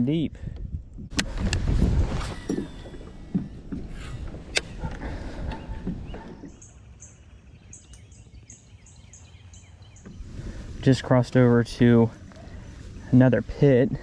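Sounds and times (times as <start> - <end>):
water noise: 1.1 - 7.0
high chirping call: 5.5 - 10.3.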